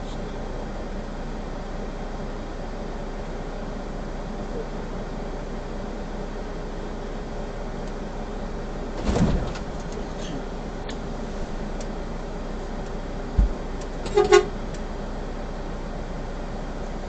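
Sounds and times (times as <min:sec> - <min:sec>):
vehicle engine hum: 0:00.0 - 0:17.0
low thump: 0:09.0 - 0:09.8, 0:13.3 - 0:13.6
vehicle horn toot: 0:14.0 - 0:14.6.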